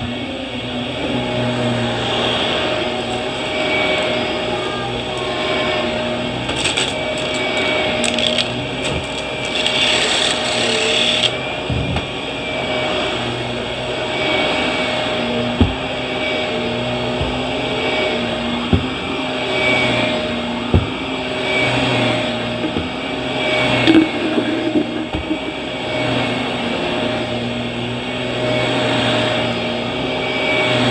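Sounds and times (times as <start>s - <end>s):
vacuum cleaner motor whine: 0.0s - 30.9s
sharp knocks: 23.8s - 26.0s.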